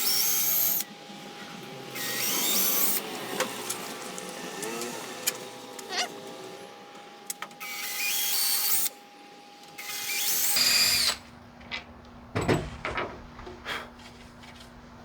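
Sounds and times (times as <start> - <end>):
power drill whining: 0.0 - 6.7, 7.6 - 9.0, 9.7 - 11.3.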